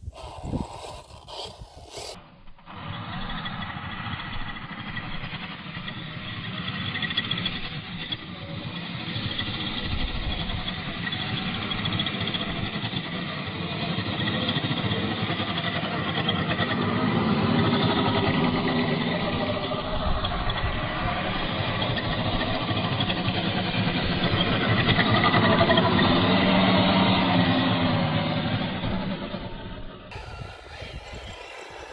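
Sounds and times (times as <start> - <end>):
toy truck electric motor: 0.0 - 2.2, 30.1 - 31.9.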